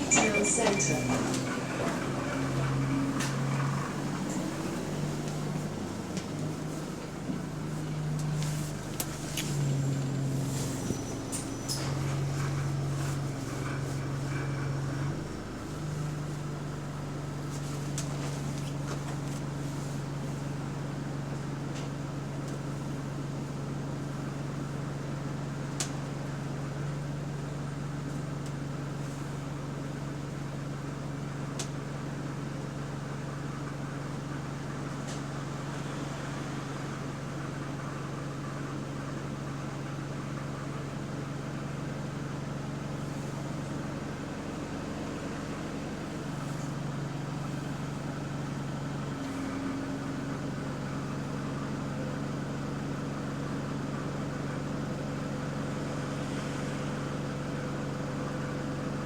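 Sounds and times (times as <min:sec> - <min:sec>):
air-conditioning hum: 0:00.0 - 0:07.1
bus engine drone: 0:00.0 - 0:59.0.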